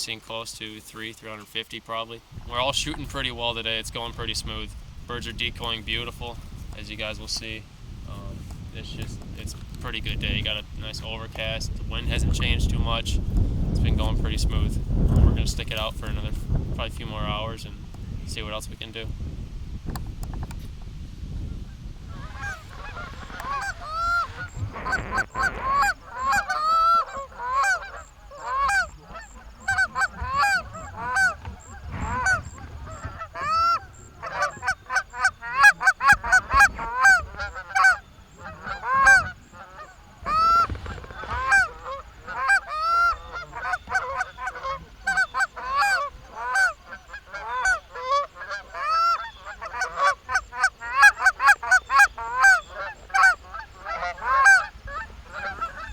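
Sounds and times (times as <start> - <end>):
geese honking and clucking: 22.1 - 55.9.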